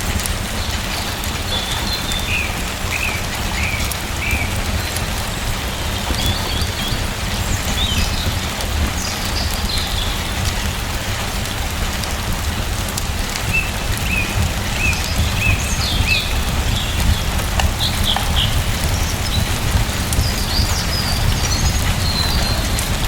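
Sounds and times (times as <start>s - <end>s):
steady rain falling: 0.0s - 23.0s
bird chirping: 13.6s - 22.8s.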